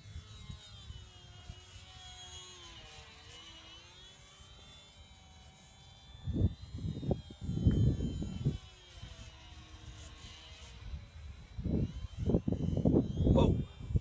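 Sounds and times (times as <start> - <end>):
model airplane motor whining: 0.0 - 14.0
wind rumble on microphone: 6.2 - 8.7, 11.6 - 14.0.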